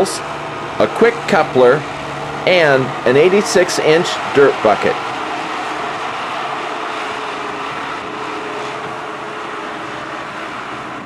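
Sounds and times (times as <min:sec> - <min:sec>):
mechanical hum and rush: 0:00.0 - 0:11.0.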